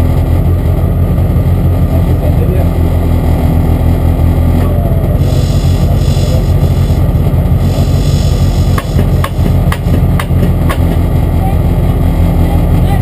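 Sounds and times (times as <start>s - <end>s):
car engine idling: 0.0s - 13.0s
sharp knocks: 8.7s - 11.1s.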